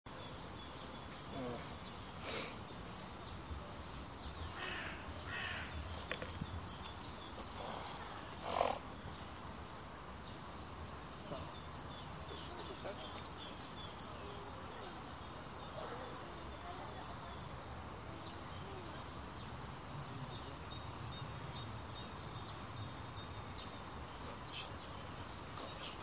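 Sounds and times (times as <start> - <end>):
bird cawing: 4.5 - 5.8.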